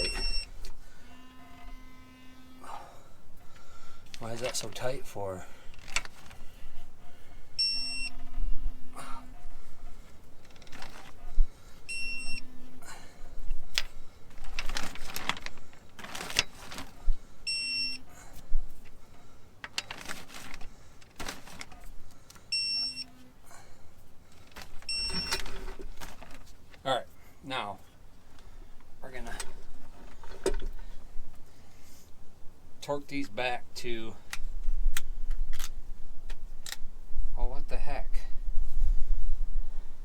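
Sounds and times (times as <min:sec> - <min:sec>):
short electronic beeps: 0:00.0 - 0:00.6, 0:07.6 - 0:08.4, 0:11.9 - 0:12.5, 0:17.5 - 0:18.0, 0:22.5 - 0:23.2, 0:24.9 - 0:25.4.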